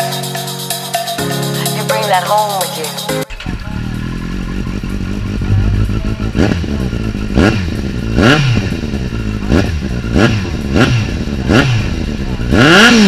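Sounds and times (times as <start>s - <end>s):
motorcycle engine idling and revving: 2.6s - 13.0s.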